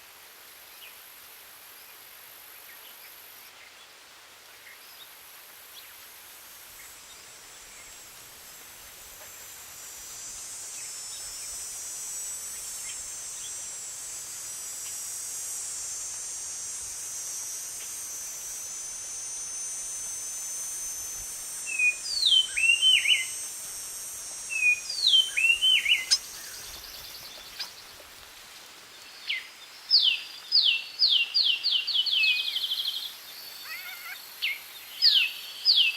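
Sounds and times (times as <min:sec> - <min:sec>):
insect hiss: 0:00.0 - 0:35.9
songbird calling: 0:21.6 - 0:23.5, 0:24.4 - 0:28.2, 0:29.0 - 0:35.9.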